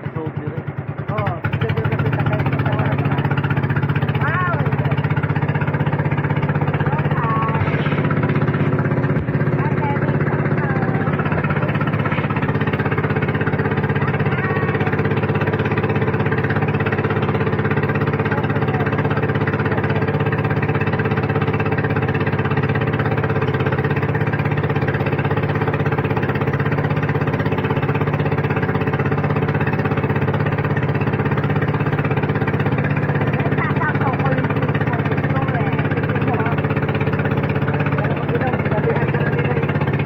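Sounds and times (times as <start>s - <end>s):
engine droning: 0.0s - 40.0s.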